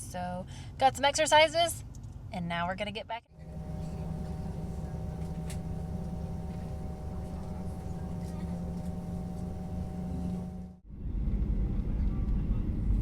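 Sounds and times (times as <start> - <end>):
vehicle rumble from inside cabin: 3.4 - 10.8.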